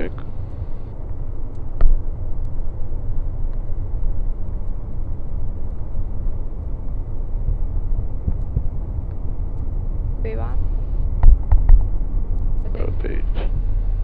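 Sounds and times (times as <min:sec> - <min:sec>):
jet engines rumbling: 0:00.0 - 0:14.0
wheels rolling on runway: 0:00.1 - 0:14.0
sharp thump: 0:01.8 - 0:02.0.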